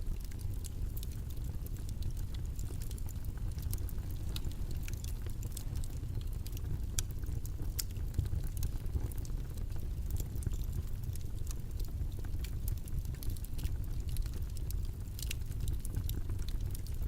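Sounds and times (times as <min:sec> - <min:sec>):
faint clicks and crackles: 0:00.0 - 0:17.0.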